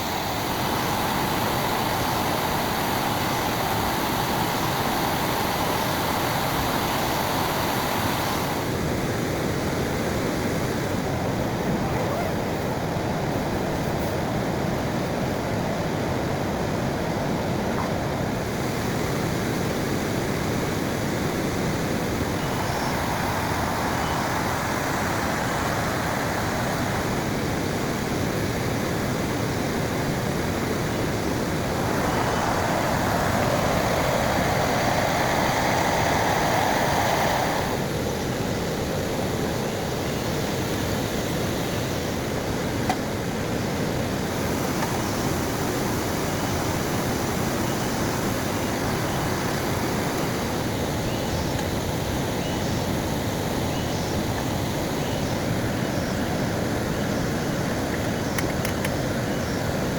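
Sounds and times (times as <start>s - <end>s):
heavy rain falling: 29.9s - 38.0s.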